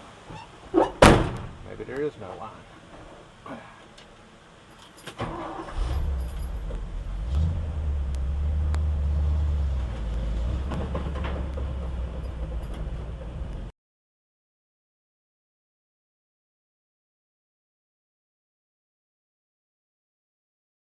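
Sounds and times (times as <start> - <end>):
truck engine starting and running: 4.8 - 13.7.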